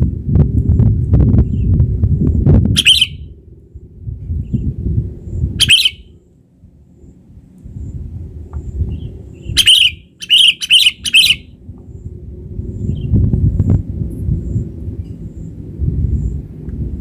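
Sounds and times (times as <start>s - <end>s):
loud low rumble: 0.0s - 17.0s
bird calls: 2.8s - 3.2s, 5.6s - 6.1s, 8.6s - 11.6s.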